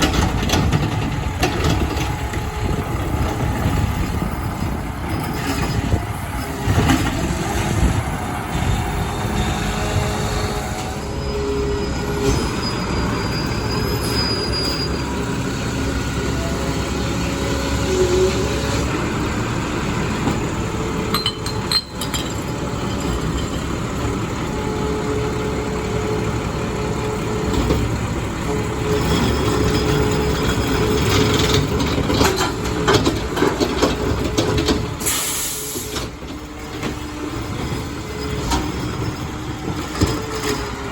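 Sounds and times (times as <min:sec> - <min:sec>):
diesel engine running: 0:00.0 - 0:40.9
long metallic squeals: 0:08.1 - 0:15.5.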